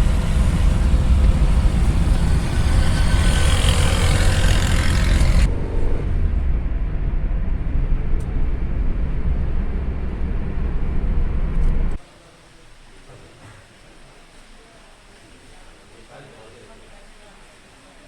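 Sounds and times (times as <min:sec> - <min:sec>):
car tyres and engine rumbling: 0:00.0 - 0:12.0.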